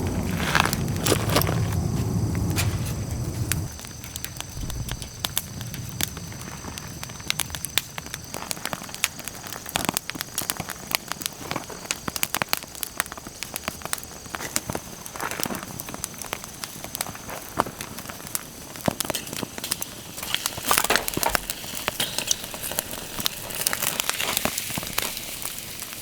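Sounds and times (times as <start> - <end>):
low rumble: 0.0 - 3.8, 4.5 - 6.4
campfire crackling and popping: 0.0 - 26.0.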